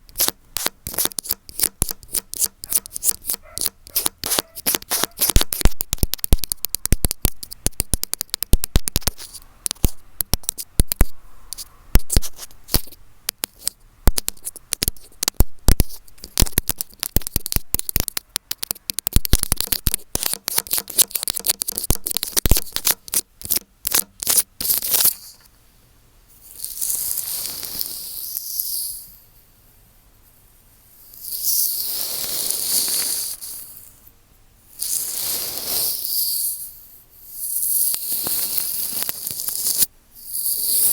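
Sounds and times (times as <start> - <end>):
tapping and scratching on microphone: 0.0 - 25.5, 38.2 - 39.9.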